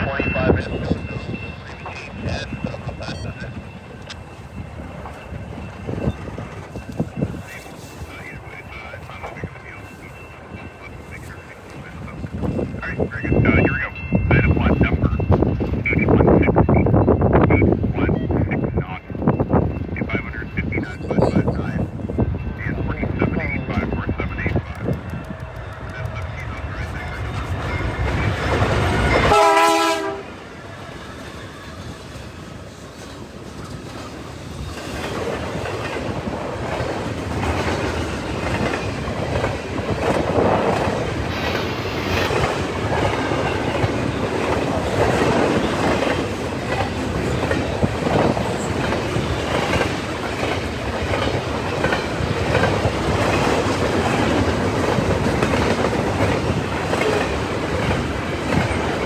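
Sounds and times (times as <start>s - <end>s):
freight train rumbling by: 0.0s - 59.0s
train horn chord: 28.6s - 30.5s.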